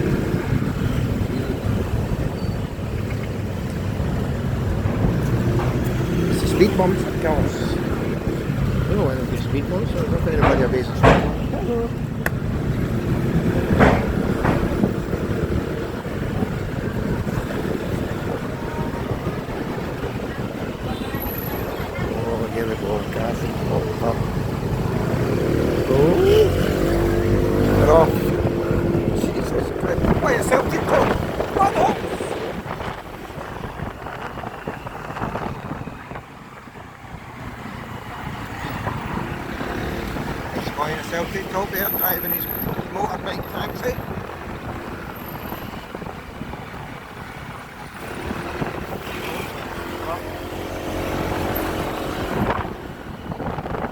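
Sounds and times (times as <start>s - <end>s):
motorbike running: 0.0s - 53.9s
traffic noise: 0.0s - 53.9s
wind buffeting microphone: 0.0s - 53.9s.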